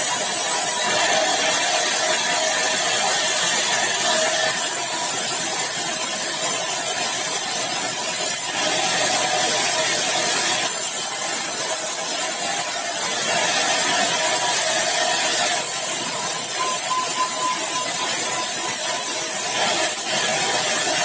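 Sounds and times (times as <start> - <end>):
saw cutting hardwood log: 0.0 - 21.0.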